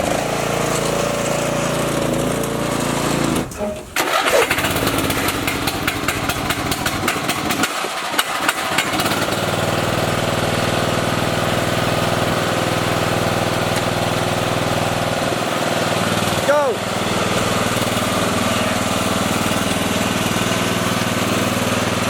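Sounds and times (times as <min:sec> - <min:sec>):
lawn mower engine running: 0:00.0 - 0:22.0
engine knocking clatter: 0:04.0 - 0:16.4.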